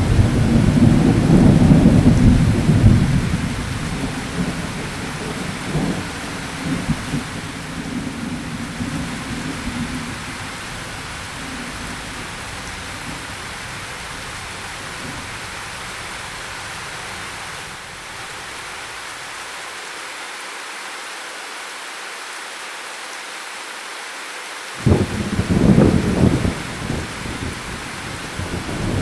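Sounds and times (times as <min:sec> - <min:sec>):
thunder rumble: 0:00.0 - 0:17.6, 0:24.8 - 0:29.0
rain falling: 0:00.0 - 0:29.0.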